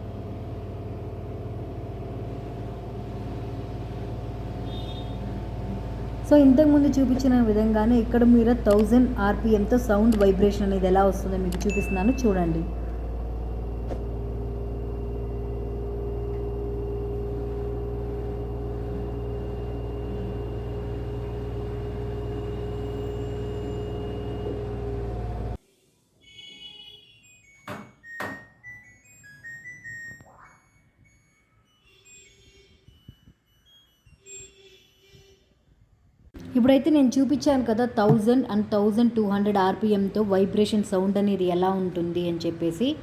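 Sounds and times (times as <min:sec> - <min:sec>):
washing machine spin hum with whine: 0:00.0 - 0:25.6, 0:36.3 - 0:43.0.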